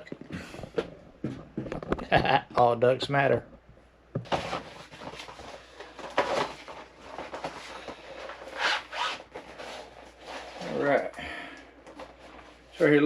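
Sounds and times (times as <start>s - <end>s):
packaging rustling and crinkling: 4.2s - 11.1s.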